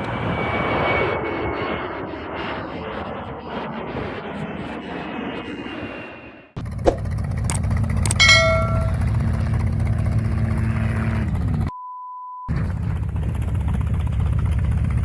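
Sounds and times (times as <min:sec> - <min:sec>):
airplane engines rushing: 0:00.0 - 0:11.7.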